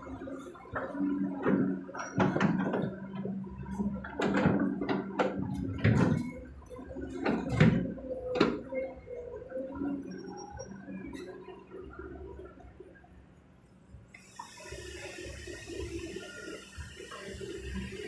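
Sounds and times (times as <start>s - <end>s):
excavator diesel engine running: 14.2s - 18.0s.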